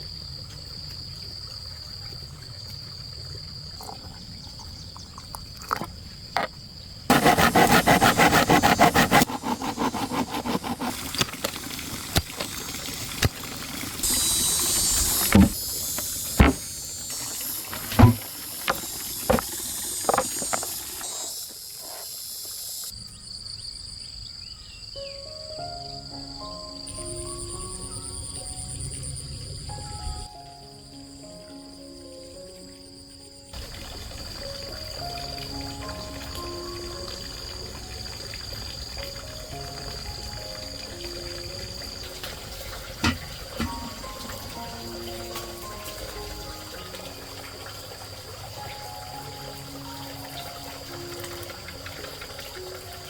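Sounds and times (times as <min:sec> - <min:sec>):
insects droning: 0:00.0 - 0:53.0
brief hiss: 0:14.0 - 0:22.9
sharp knocks: 0:17.8 - 0:20.8.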